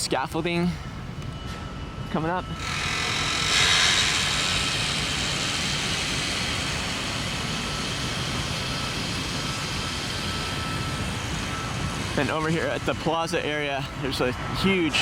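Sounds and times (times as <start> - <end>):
jet aircraft passing overhead: 4.1 - 15.0.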